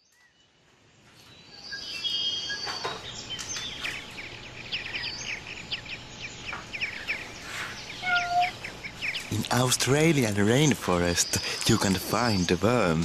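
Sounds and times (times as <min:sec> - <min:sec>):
background hiss: 0:00.0 - 0:13.0
birds chirping: 0:00.0 - 0:13.0.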